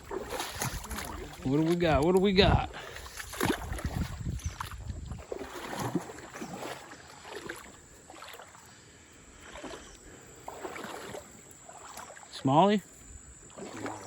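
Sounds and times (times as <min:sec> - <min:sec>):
creek water splashing: 0:00.0 - 0:14.0.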